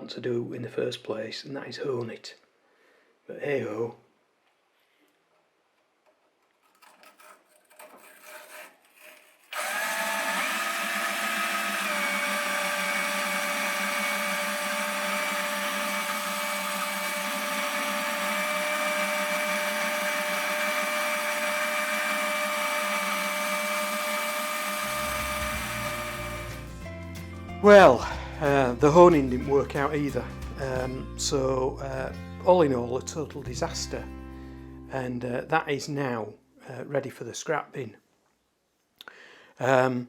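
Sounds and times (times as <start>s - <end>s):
hone motor whining: 9.5s - 26.7s.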